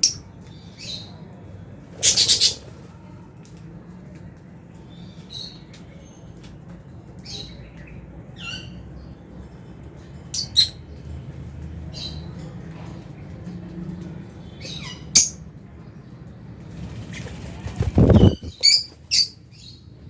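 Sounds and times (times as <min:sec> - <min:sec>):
birds chirping and squawking: 0:00.0 - 0:01.2, 0:01.8 - 0:02.9, 0:07.2 - 0:09.3, 0:10.1 - 0:11.1, 0:11.9 - 0:15.5, 0:16.7 - 0:20.0.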